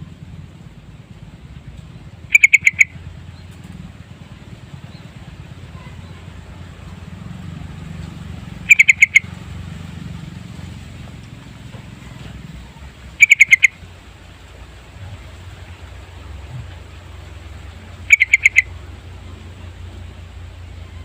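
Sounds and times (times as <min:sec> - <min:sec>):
steady low hum: 0:00.0 - 0:21.0
bird calling bubbling notes: 0:02.2 - 0:03.5, 0:08.6 - 0:09.5, 0:13.1 - 0:14.0, 0:15.0 - 0:21.0.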